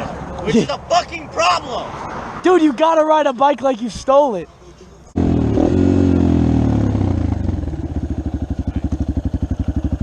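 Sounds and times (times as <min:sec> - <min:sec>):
dirt bike engine idling: 0:05.2 - 0:10.0.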